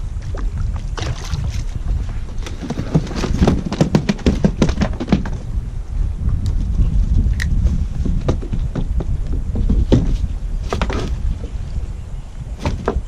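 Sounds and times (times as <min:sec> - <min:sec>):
wind on microphone: 0:00.0 - 0:13.0
fish knocking on kayak: 0:00.5 - 0:05.4.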